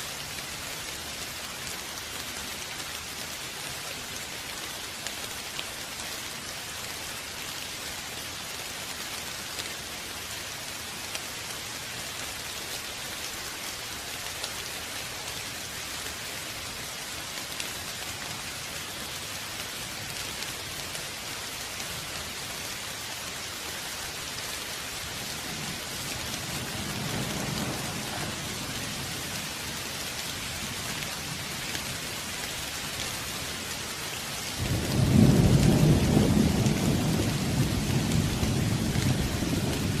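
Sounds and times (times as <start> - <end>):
steady rain falling: 0.0 - 40.0
rumbling thunder: 25.6 - 29.1, 34.6 - 40.0.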